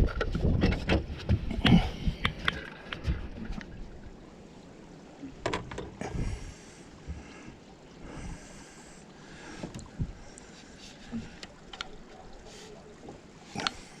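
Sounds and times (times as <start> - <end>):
knocks and bumps in a boat: 0.0 - 3.7, 5.4 - 6.4, 9.5 - 10.2.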